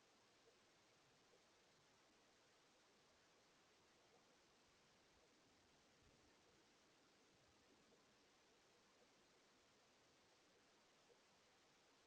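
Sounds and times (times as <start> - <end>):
faint microphone hiss: 0.0 - 12.0.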